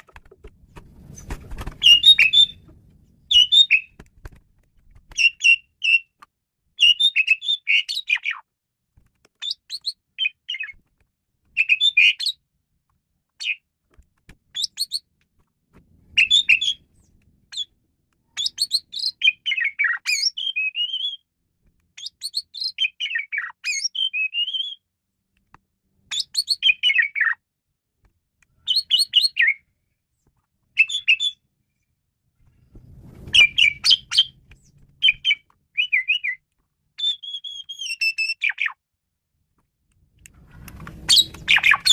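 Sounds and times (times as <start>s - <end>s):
starling singing: 1.8s - 2.7s, 3.3s - 4.0s, 35.0s - 36.4s, 41.0s - 41.9s.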